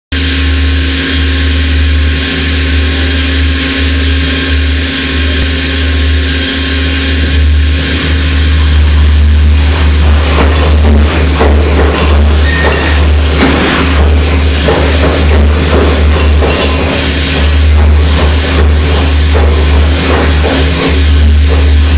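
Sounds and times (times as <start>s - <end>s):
hydraulic machine droning: 0.1s - 21.9s
thin high whine: 0.1s - 21.9s.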